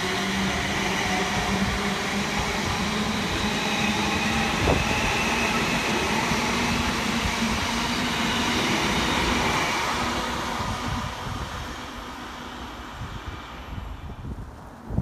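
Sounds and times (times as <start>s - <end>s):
electric train passing: 0.0s - 14.9s
wheels rumbling on rail: 0.0s - 15.0s.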